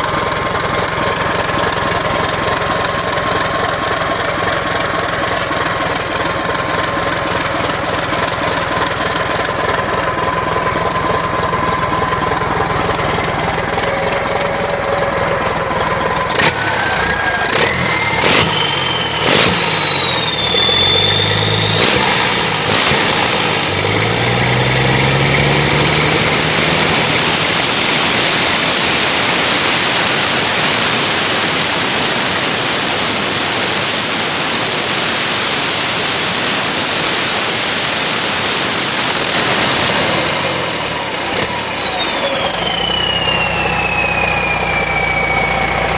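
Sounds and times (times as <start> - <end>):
diesel engine running: 0.0 - 45.9
high whine rising in pitch: 9.7 - 45.9.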